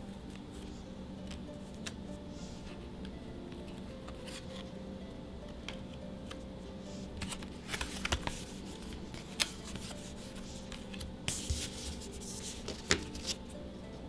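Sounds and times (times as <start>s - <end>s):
card rustle: 0.0s - 4.8s, 5.4s - 13.6s
trading cards sliding together: 5.6s - 13.4s
card stock snaps and clicks: 7.1s - 13.4s.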